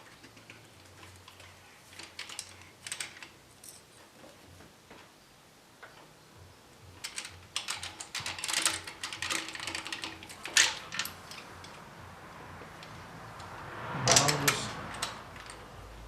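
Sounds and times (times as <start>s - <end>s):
hand tools clicking and rattling: 0.0s - 4.1s, 6.8s - 11.9s, 14.1s - 15.8s.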